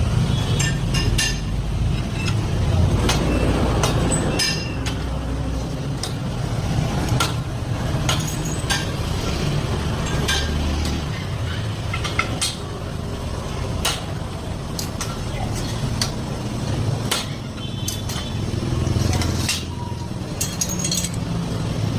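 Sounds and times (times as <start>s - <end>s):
metal clinks and knocks: 0.3s - 5.1s, 7.2s - 9.3s, 19.0s - 21.6s.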